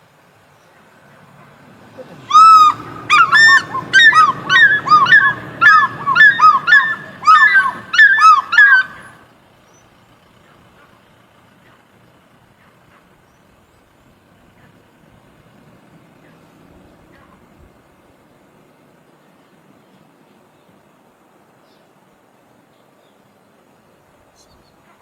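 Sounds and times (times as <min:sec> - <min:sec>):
bird calling rapidly: 0:02.1 - 0:09.2.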